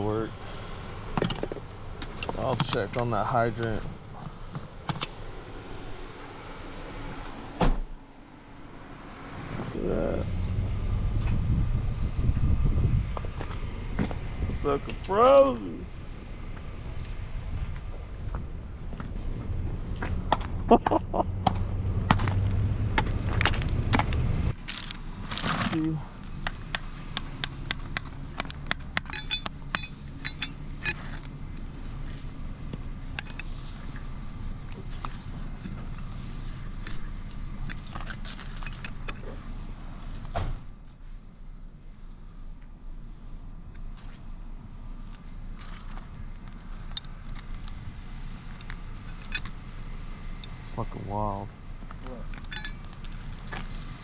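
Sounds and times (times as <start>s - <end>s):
low background rumble: 0.0s - 25.4s
metal tools clinking: 1.2s - 3.8s, 4.8s - 5.2s, 29.0s - 31.2s, 37.6s - 39.3s, 49.0s - 49.6s, 52.3s - 53.6s.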